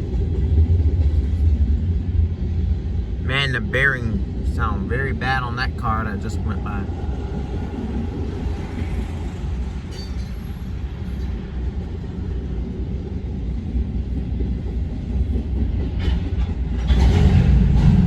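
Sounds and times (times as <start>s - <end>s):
steel wheels rumbling on rail: 6.9s - 18.0s.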